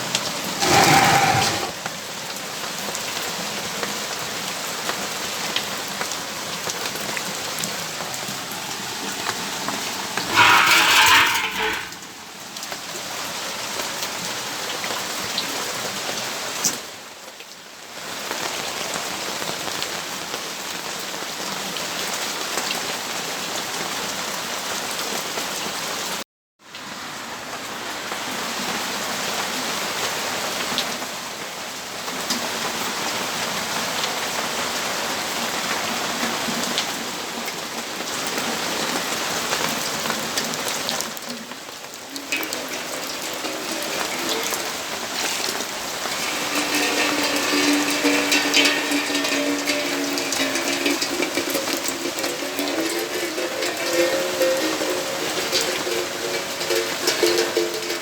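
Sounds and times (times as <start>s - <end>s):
rain hissing on surfaces: 0.0s - 58.0s.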